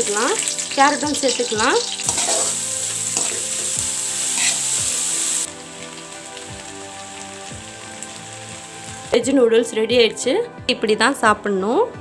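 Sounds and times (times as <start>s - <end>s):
vegetables sizzling in hot oil: 0.0s - 9.3s
metal spoon stirring in wok: 1.3s - 3.8s, 4.4s - 4.7s.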